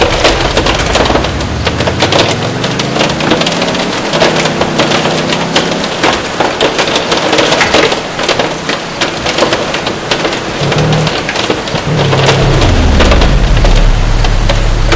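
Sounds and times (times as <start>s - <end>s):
car engine revving: 0.0s - 6.9s, 10.6s - 14.9s
hail pelting a car: 0.0s - 14.9s
rain hissing: 0.0s - 14.9s.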